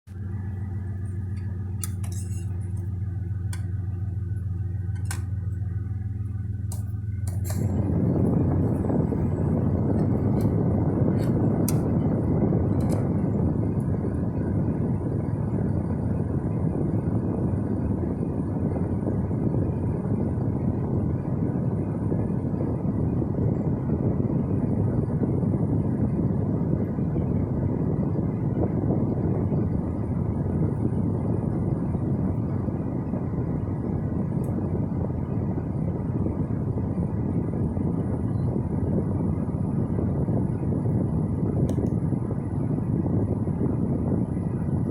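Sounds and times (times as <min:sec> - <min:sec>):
car engine idling: 0:00.0 - 0:23.2
air-conditioning blower rushing: 0:00.1 - 0:44.9.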